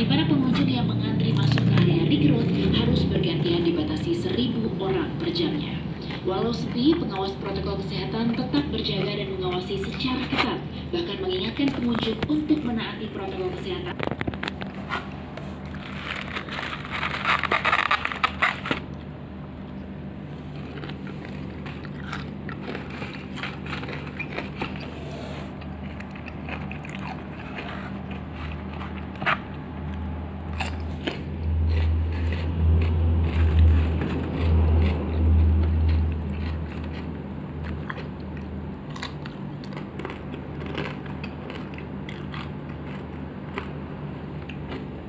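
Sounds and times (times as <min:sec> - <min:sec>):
faint low hum: 0:00.0 - 0:45.0
crunchy bites and chewing: 0:13.9 - 0:45.0.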